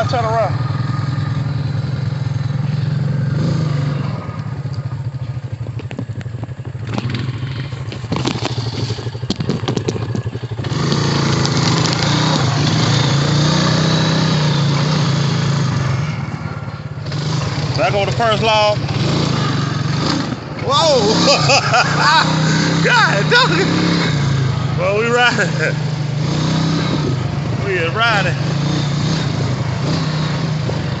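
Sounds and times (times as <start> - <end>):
quad bike engine running: 0.0 - 31.0
clicks and clatter: 5.6 - 12.2.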